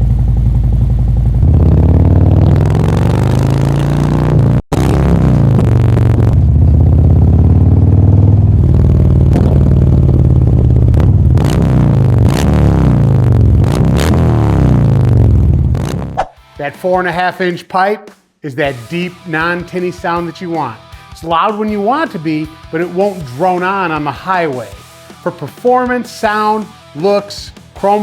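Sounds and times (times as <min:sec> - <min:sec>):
motorcycle engine revving: 0:00.0 - 0:16.2.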